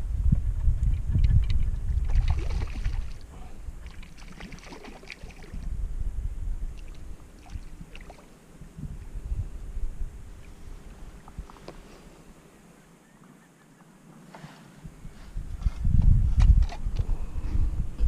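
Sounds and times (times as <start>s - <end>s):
wind buffeting microphone: 0.0s - 11.9s, 14.8s - 18.0s
light water sounds: 1.4s - 5.7s, 6.7s - 8.4s.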